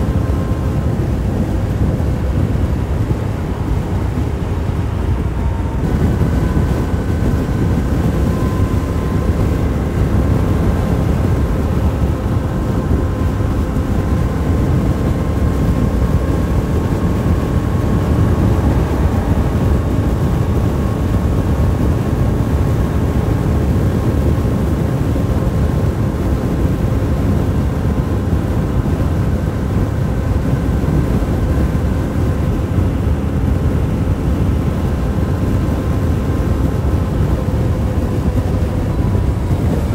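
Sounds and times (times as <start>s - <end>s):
motorcycle engine drone: 0.0s - 39.9s
rushing wind: 0.0s - 39.9s.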